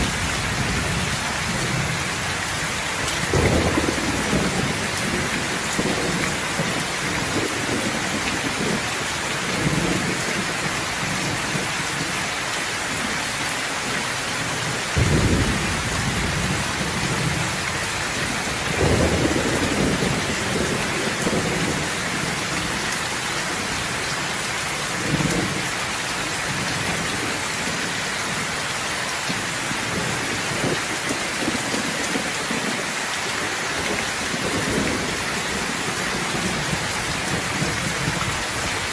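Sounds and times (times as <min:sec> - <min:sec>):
thunder rumbling: 0:00.0 - 0:11.7, 0:14.7 - 0:23.9
steady rain falling: 0:00.0 - 0:38.9.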